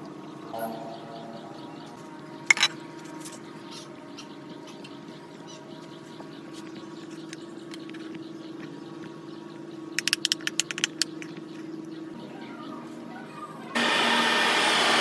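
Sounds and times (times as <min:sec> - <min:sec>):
low hum: 0:00.4 - 0:04.1.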